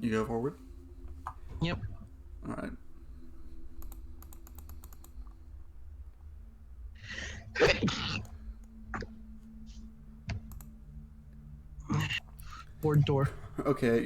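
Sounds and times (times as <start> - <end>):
keyboard clicks: 3.8 - 5.4, 10.3 - 10.7
person sneezing: 7.1 - 8.2.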